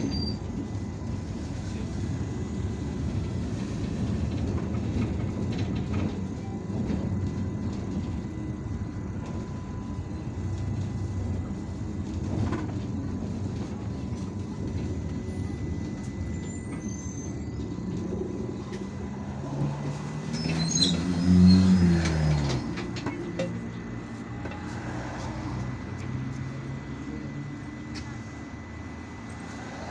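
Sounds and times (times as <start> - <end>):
bus engine and road rumble: 0.0 - 29.9.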